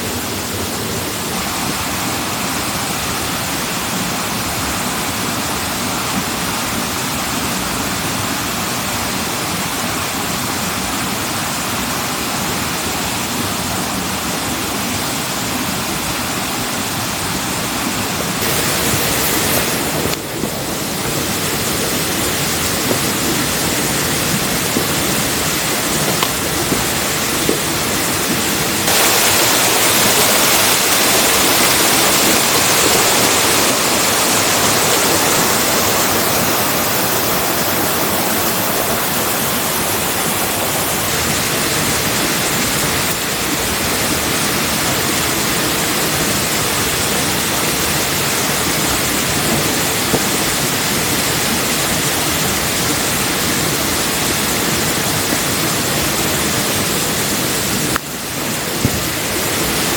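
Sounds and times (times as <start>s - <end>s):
loud steady rushing noise: 15.8s - 59.9s.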